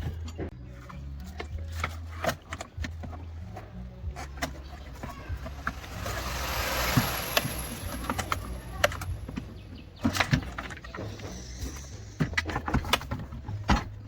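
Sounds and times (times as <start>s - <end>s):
clicks and knocks of hand work: 7.0s - 14.0s.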